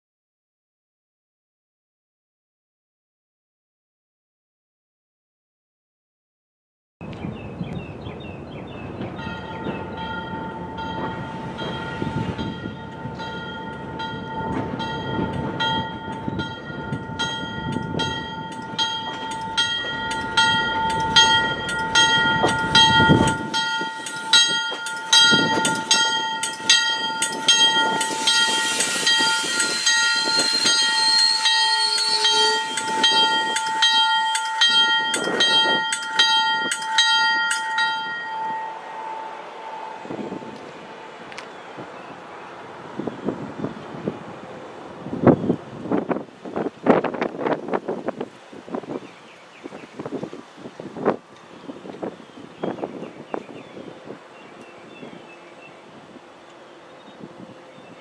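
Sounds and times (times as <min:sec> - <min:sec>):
train rolling by: 0:07.9 - 0:58.0
train bell ringing: 0:09.1 - 0:41.1
high wheel squeal: 0:20.4 - 0:34.0.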